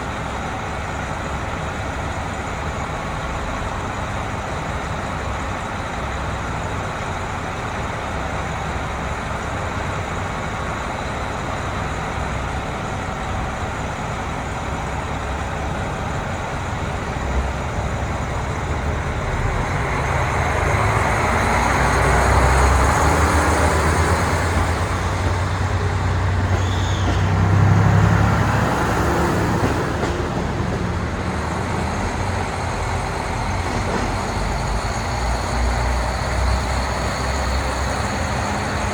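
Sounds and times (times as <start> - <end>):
diesel railcar engine hum: 0.0 - 38.9
train rushing past: 9.8 - 38.9.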